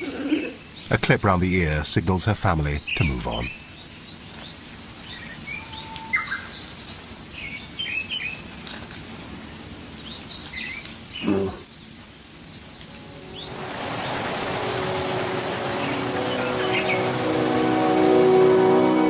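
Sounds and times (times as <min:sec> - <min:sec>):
songbirds chirping: 0:00.0 - 0:19.0
brief low bird call: 0:11.2 - 0:11.7.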